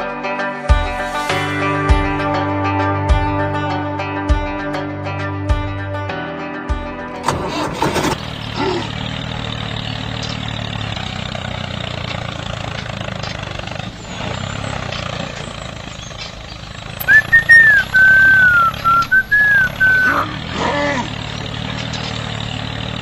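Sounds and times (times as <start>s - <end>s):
high wavering whistle tone: 17.0s - 20.2s.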